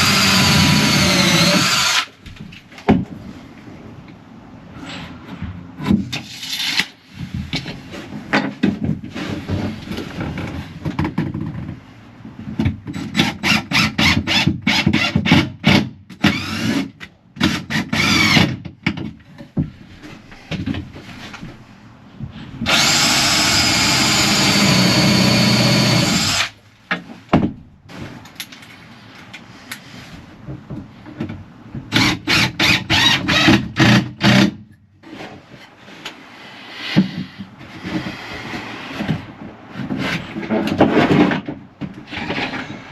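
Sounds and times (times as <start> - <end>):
cordless drill driving screws: 0.0 - 2.1, 22.7 - 26.5
power tool running: 0.0 - 2.1, 22.7 - 26.5.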